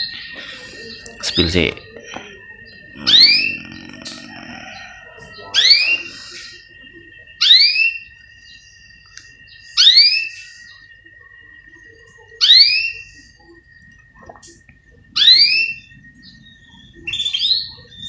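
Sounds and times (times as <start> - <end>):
faint steady high tone: 0.0 - 18.0
canary upswept call: 2.9 - 6.6.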